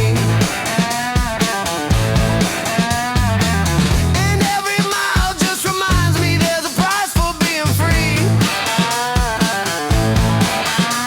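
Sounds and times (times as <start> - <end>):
lead electric guitar melody: 0.0 - 4.2
bass guitar: 0.0 - 4.6, 5.6 - 6.6, 7.5 - 11.0
drums: 0.0 - 11.0.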